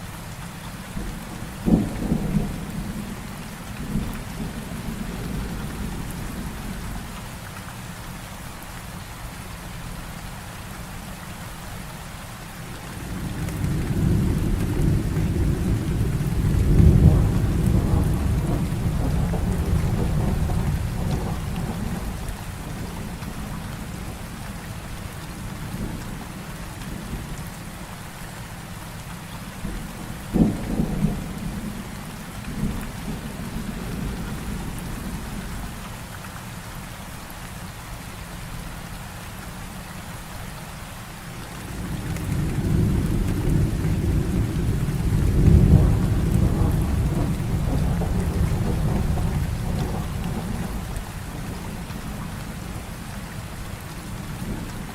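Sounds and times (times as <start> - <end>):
heavy rain falling: 0.0 - 54.9
rolling thunder: 1.0 - 3.2, 13.0 - 24.2, 29.6 - 35.6, 41.6 - 52.9
sharp thunderclap: 13.6 - 22.2, 42.3 - 50.8.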